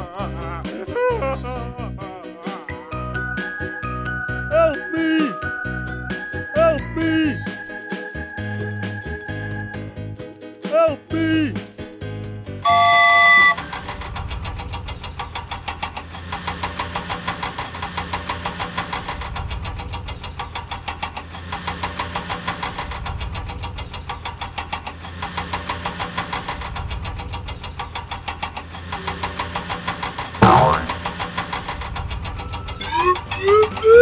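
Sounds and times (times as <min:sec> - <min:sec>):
engine with knocking pulse: 0:13.4 - 0:34.0.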